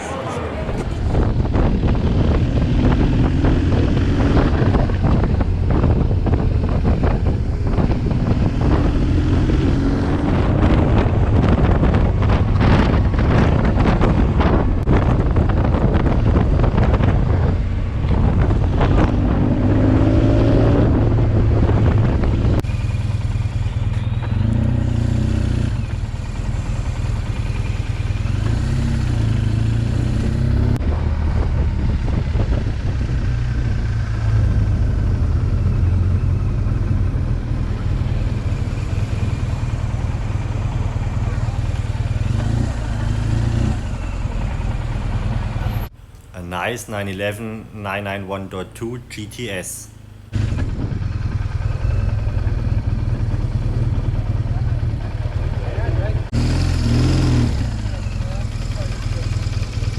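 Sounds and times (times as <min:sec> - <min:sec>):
wind rushing over microphone: 0:00.0 - 0:22.7, 0:28.0 - 0:47.6, 0:48.6 - 0:58.6
motorcycle engine accelerating: 0:00.0 - 0:46.2, 0:48.7 - 0:59.9.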